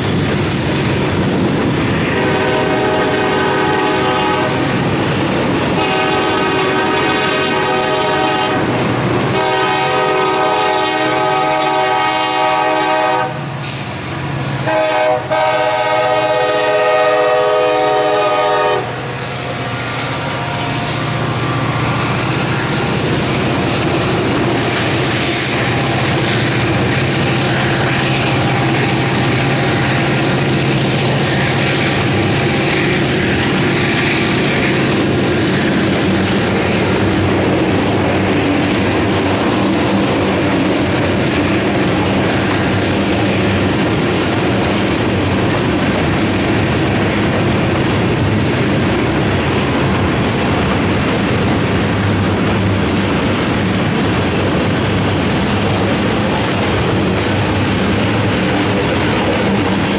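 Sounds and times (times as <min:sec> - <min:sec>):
diesel locomotive droning: 0:00.0 - 0:59.9
freight cars clickety-clack: 0:00.0 - 0:59.9
locomotive horn blasts: 0:02.1 - 0:04.7, 0:05.7 - 0:13.5, 0:14.6 - 0:19.1, 0:20.2 - 0:21.6.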